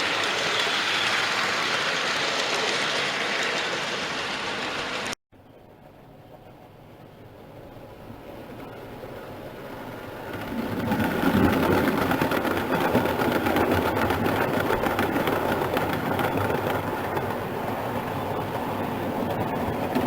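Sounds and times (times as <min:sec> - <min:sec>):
model train motor whirring: 0:00.0 - 0:05.1
wheels clicking over rail joints: 0:07.8 - 0:20.0.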